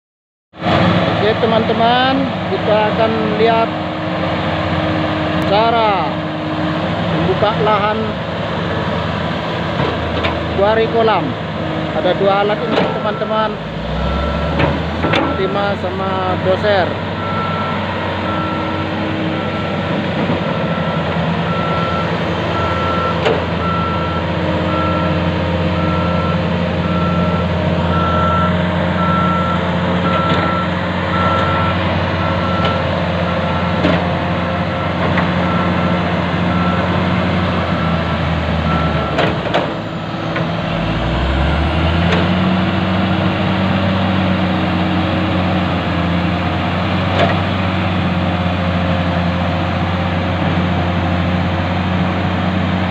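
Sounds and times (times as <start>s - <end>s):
heavy diesel machinery running: 0.6s - 52.9s
reversing alarm beeping: 12.4s - 33.8s, 34.7s - 39.2s, 39.8s - 42.4s.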